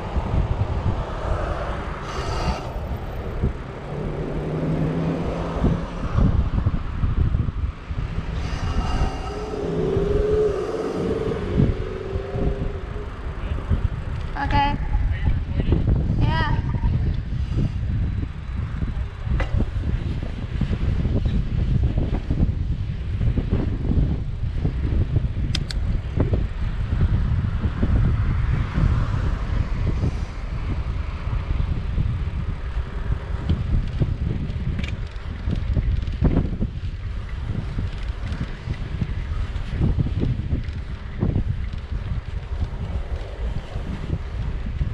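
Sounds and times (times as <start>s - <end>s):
vehicle hum: 0.0s - 20.5s
wind buffeting microphone: 0.0s - 44.9s.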